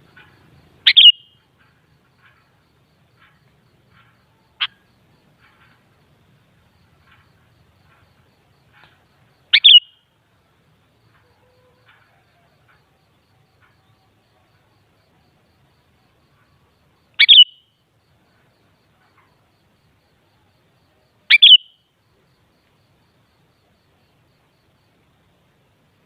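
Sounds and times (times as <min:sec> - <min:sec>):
bird calling sharp notes: 0:00.2 - 0:01.4, 0:09.5 - 0:10.0, 0:17.2 - 0:17.6, 0:21.3 - 0:21.8.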